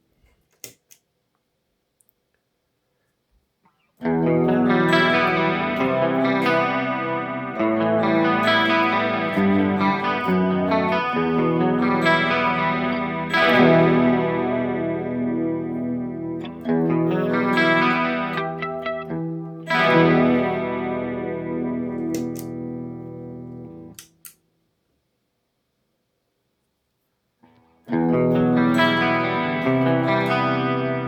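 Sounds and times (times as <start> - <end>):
electric guitar chords with chorus: 4.0 - 24.0, 27.8 - 31.0.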